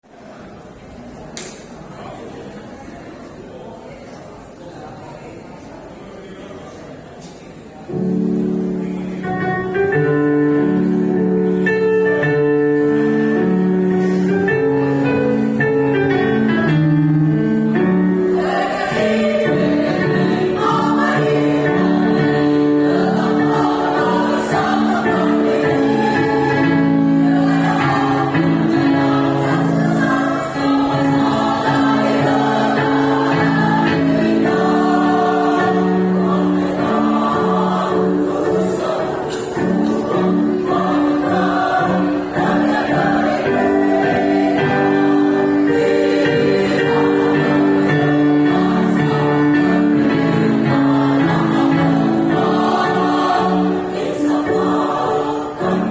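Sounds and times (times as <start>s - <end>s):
choir singing: 12.8s - 55.9s.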